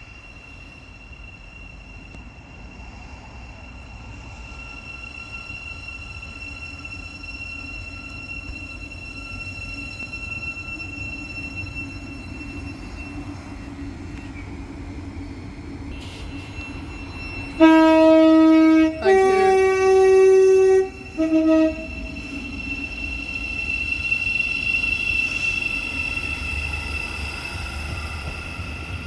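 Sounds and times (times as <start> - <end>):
train running noise: 0.0 - 29.0
two-tone train horn: 15.9 - 23.0.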